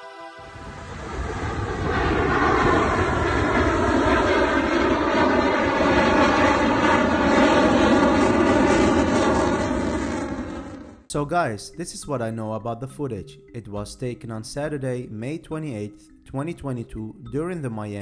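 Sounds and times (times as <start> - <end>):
jet aircraft engine roar: 0.0 - 11.1.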